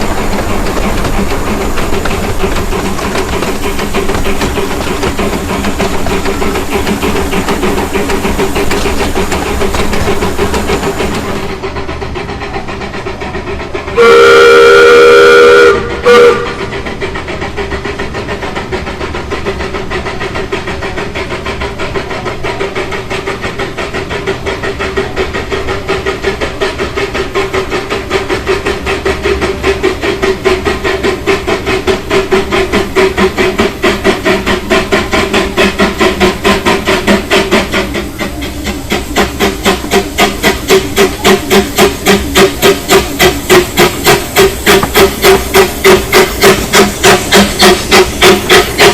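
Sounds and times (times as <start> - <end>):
steam locomotive exhaust chuffs: 0.0 - 48.9
steam locomotive whistle: 14.0 - 16.6.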